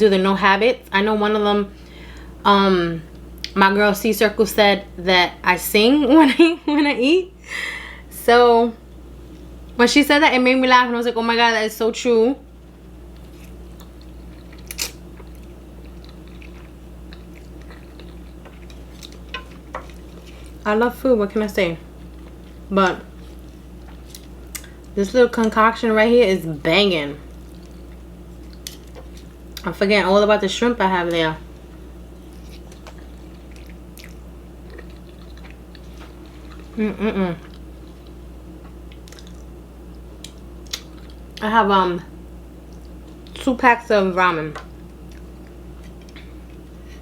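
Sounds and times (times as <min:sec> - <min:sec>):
low electrical hum: 0:00.0 - 0:47.0
chewing noodles: 0:13.1 - 0:20.6, 0:32.2 - 0:36.8, 0:37.4 - 0:41.4
person humming mm: 0:36.8 - 0:37.5.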